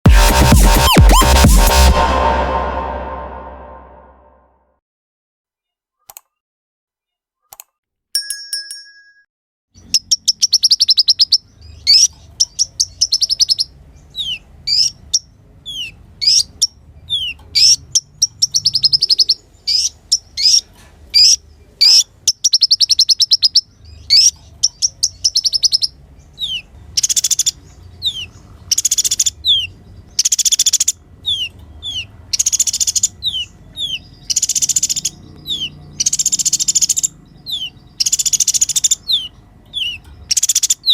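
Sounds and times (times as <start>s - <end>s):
sunbird singing trills: 30.3s - 40.9s.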